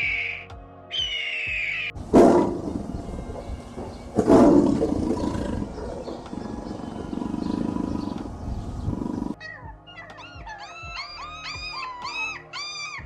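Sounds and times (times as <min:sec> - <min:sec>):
high gliding calls: 0:00.0 - 0:13.0
large animal roaring: 0:02.0 - 0:09.4
low growl: 0:02.0 - 0:09.4.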